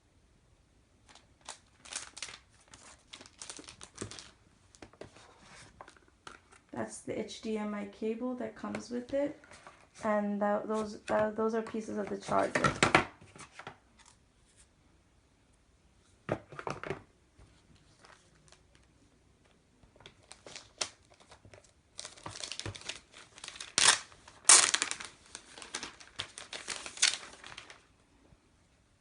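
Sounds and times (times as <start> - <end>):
packaging crinkling: 1.0 - 6.7, 20.0 - 27.9
packaging ripping: 1.1 - 4.4, 20.2 - 27.8.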